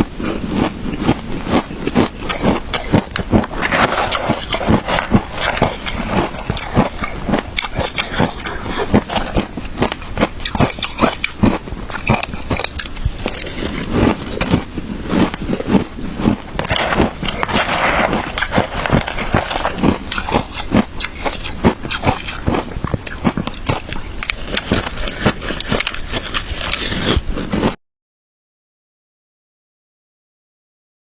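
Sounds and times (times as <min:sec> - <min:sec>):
ice being chewed: 0:00.2 - 0:27.8.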